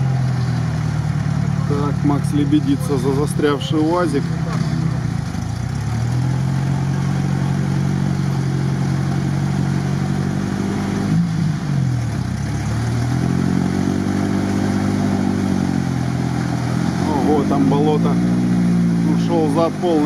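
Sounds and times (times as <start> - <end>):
off-road engine revving under load: 0.0 - 20.0.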